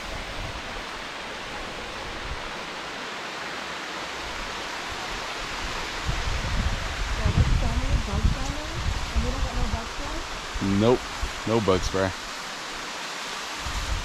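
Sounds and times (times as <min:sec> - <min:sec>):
waterfall rushing: 0:00.0 - 0:14.0
low rumble on microphone: 0:06.0 - 0:10.3.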